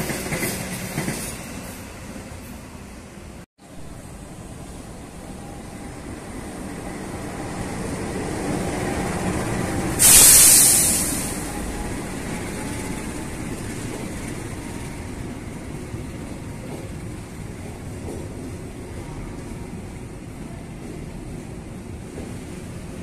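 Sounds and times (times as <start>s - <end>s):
train rumbling past: 0.0s - 23.0s
loud air hiss blast: 9.9s - 11.6s.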